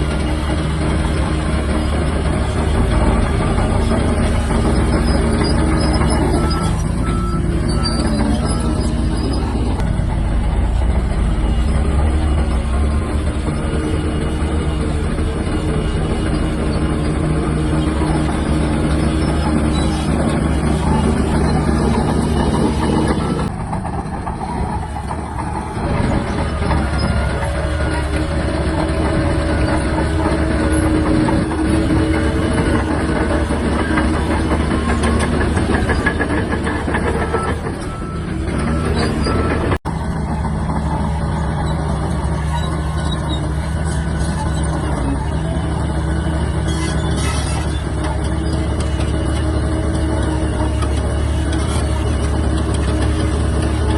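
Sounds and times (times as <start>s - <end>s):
bulldozer diesel engine running: 0.0s - 53.9s.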